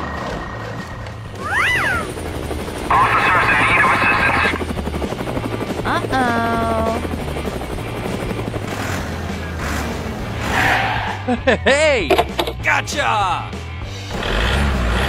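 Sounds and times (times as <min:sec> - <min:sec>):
heavy truck engine rumble: 0:00.0 - 0:02.1
cartoon vocal effects: 0:05.9 - 0:07.0.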